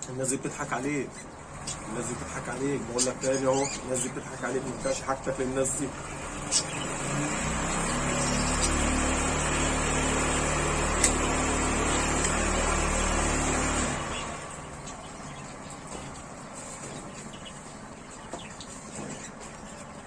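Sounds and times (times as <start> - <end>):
motor humming with hiss: 6.0 - 15.0.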